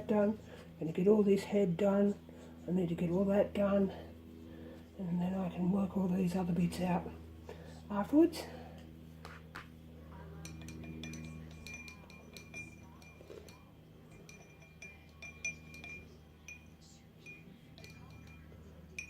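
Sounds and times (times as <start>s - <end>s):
brush clinking against glass: 10.3s - 19.0s.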